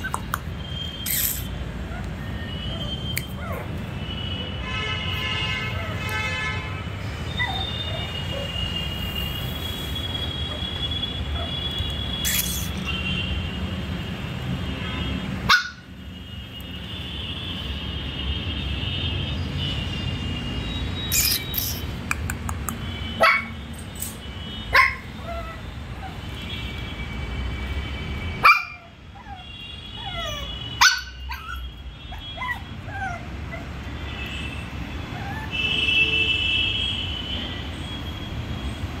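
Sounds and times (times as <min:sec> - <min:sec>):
puppies yipping and whimpering: 0:01.1 - 0:03.8, 0:07.2 - 0:08.6, 0:30.0 - 0:33.8, 0:35.1 - 0:35.5
sharp loud barks: 0:12.2 - 0:12.8.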